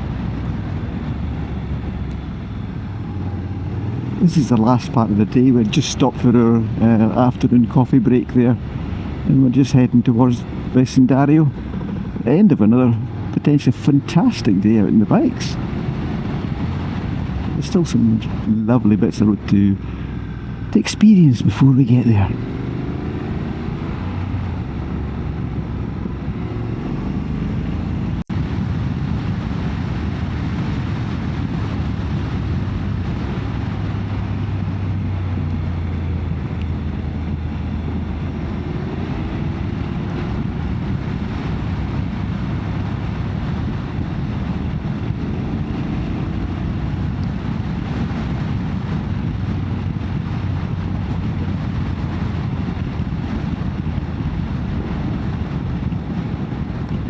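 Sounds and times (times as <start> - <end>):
wind rushing over microphone: 0.0 - 57.0
motorcycle engine: 10.1 - 13.4, 22.3 - 57.0.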